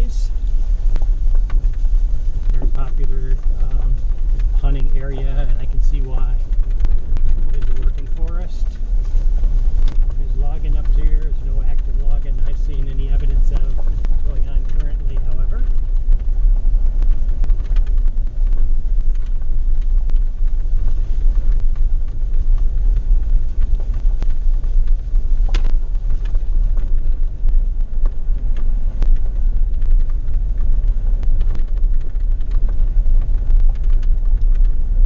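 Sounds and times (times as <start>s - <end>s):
sharp gravel clicks: 0.0s - 35.0s
vehicle rumbling on gravel: 0.0s - 35.0s.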